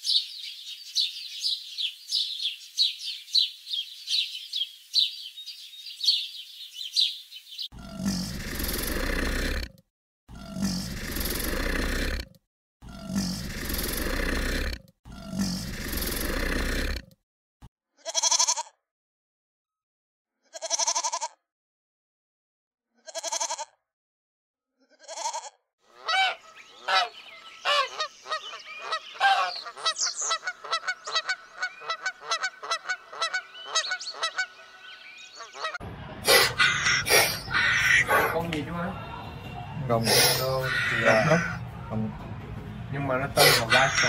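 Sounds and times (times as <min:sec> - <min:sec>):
geese honking: 0:25.9 - 0:41.9, 0:43.3 - 0:44.0.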